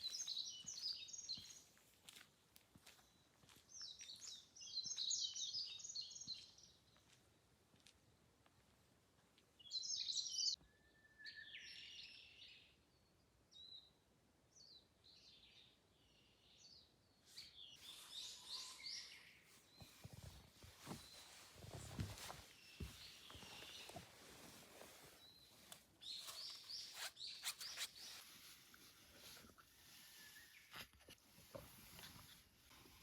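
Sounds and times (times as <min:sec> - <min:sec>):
birds chirping: 0:00.0 - 0:01.8, 0:03.0 - 0:07.1, 0:15.2 - 0:28.6.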